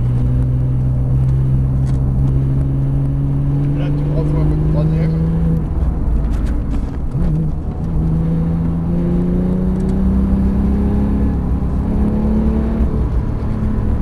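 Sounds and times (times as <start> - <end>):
car engine revving from inside cabin: 0.0 - 5.7, 7.2 - 14.0.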